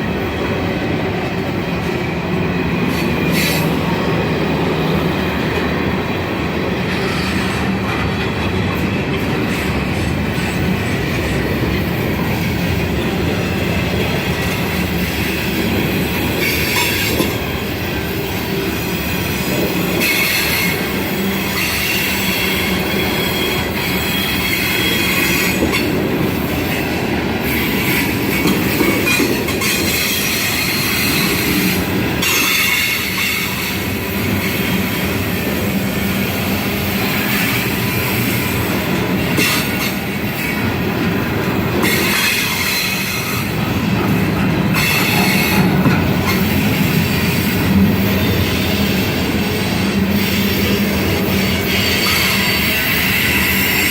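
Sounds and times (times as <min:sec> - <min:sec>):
train cars rolling on rails: 0:00.0 - 0:53.9
high wheel squeal: 0:18.1 - 0:35.4, 0:41.8 - 0:53.9.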